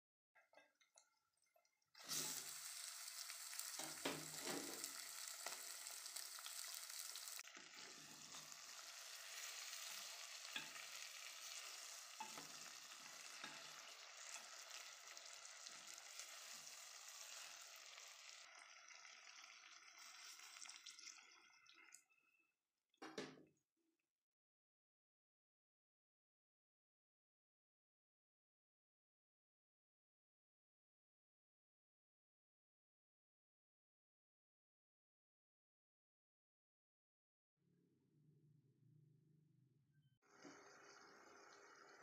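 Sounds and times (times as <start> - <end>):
chicken sizzling in hot oil: 1.4 - 22.4, 40.2 - 42.0.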